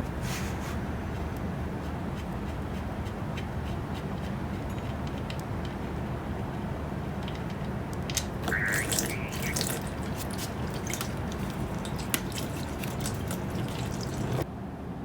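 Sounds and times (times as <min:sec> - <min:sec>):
oil dripping into drain pan: 0:07.2 - 0:14.4.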